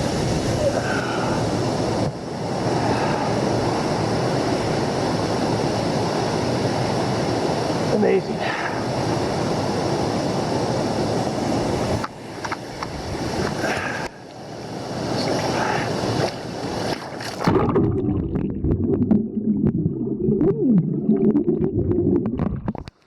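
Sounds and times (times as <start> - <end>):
wind on microphone: 0.0 - 8.0, 12.7 - 14.1
falling water rushing: 10.1 - 22.7
muffled underwater knocks and gurgles: 17.4 - 23.0.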